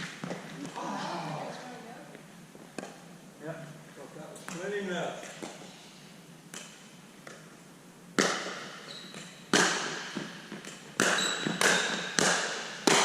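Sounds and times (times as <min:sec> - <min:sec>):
ball bouncing on court: 0:08.2 - 0:13.0.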